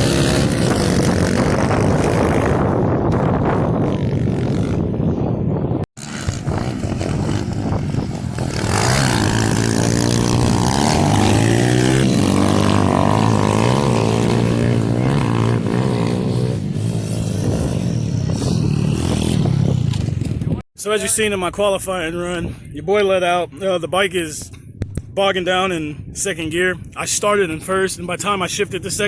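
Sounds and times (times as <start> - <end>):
small motorbike engines revving: 0.0 - 5.1, 6.0 - 20.6.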